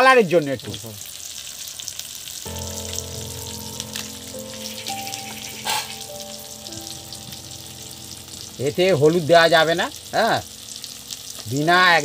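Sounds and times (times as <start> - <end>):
chicken sizzling in a pan: 0.0 - 12.0
soft background music: 2.5 - 12.0.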